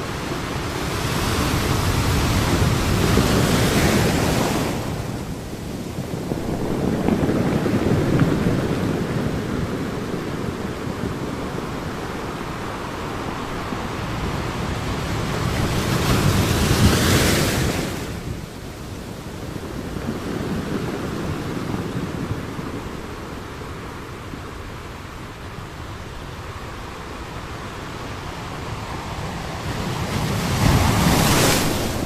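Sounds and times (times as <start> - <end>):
ocean waves breaking on beach: 0.0 - 32.0
wave crashing with hiss: 24.6 - 32.0.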